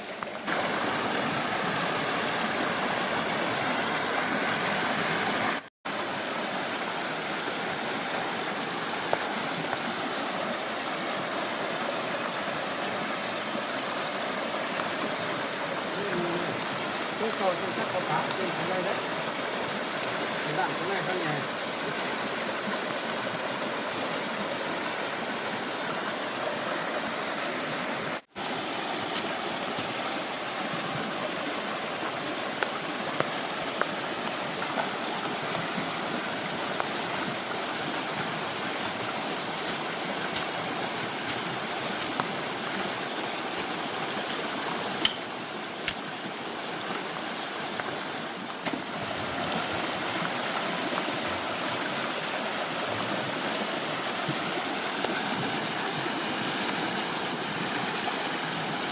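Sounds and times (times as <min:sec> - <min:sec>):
stream water rushing: 0:00.0 - 0:58.9
sharp ticks and knocks: 0:45.0 - 0:46.0.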